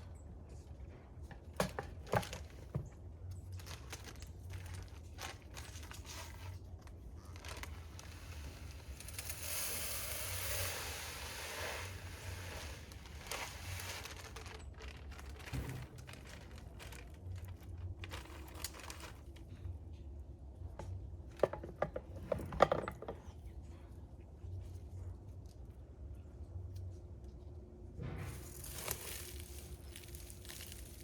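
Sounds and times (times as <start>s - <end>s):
crinkling and rustling of birdseed: 0.4s - 19.8s, 27.3s - 31.0s
steady hiss: 7.8s - 14.4s.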